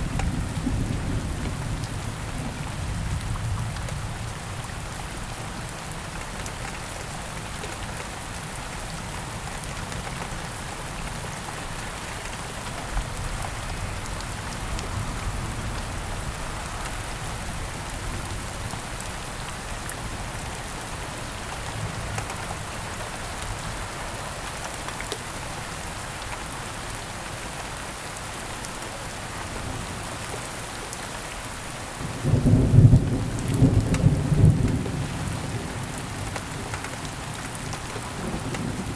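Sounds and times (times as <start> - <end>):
heavy rain falling: 0.0 - 38.9
loud thunder: 32.2 - 36.0.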